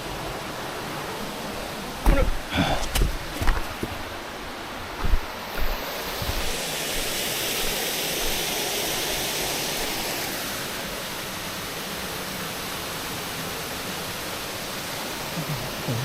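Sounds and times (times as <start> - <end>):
mountain stream rushing: 0.0 - 16.0
low thumps: 2.0 - 4.2, 4.9 - 8.4.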